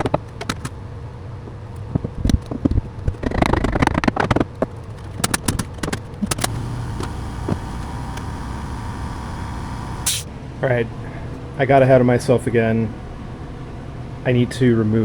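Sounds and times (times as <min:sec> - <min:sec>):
sharp knocks and clicks: 0:00.0 - 0:00.8, 0:01.4 - 0:08.4
steady low hum: 0:00.0 - 0:15.0
faint thin whine: 0:06.2 - 0:10.3.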